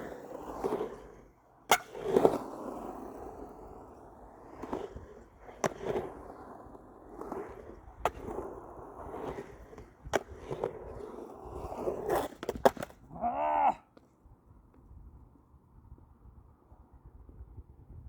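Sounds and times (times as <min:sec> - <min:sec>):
skateboard clacks: 0:00.0 - 0:13.2
skateboard wheels rolling: 0:00.0 - 0:17.0.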